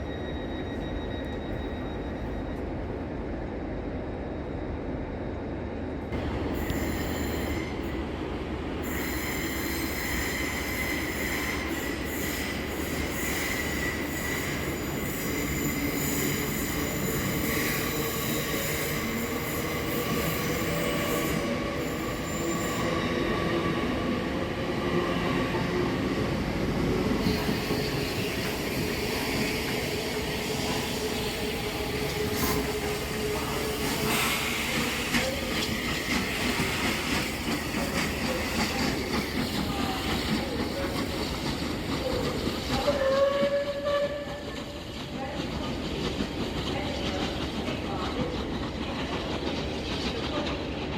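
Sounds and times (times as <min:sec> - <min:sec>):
train wheels squealing on rails: 0:00.0 - 0:50.9
train rumble: 0:10.5 - 0:50.9.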